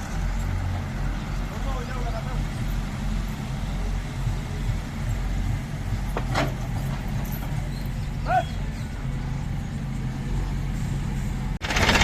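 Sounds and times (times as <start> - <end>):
backhoe diesel engine humming: 0.0 - 12.0.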